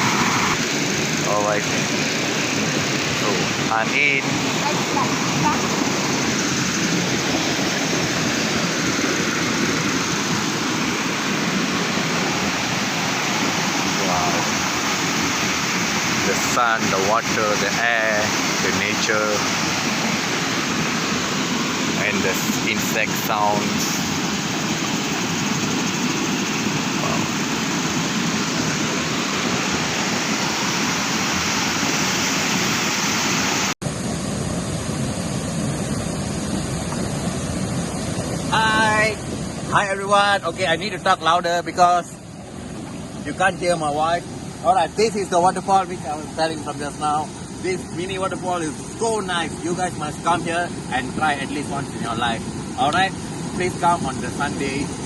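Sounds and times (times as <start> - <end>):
waterfall pouring: 0.0 - 25.8
small waterfall rushing: 0.0 - 55.0.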